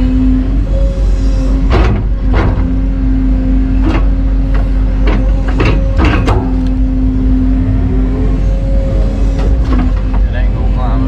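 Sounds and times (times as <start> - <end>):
excavator diesel engine running: 0.0 - 11.0
hydraulic whine: 0.0 - 11.0.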